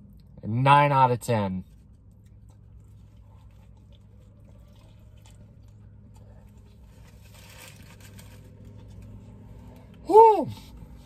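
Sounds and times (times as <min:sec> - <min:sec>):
man chewing food: 0:01.6 - 0:09.9.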